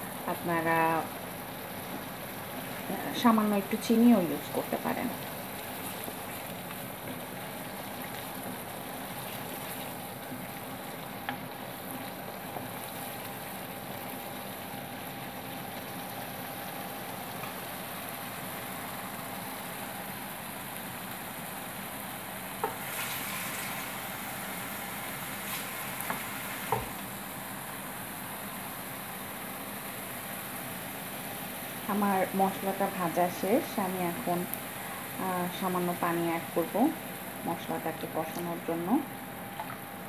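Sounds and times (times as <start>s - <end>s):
paste sizzling in oil: 3.7s - 14.2s, 21.8s - 27.2s.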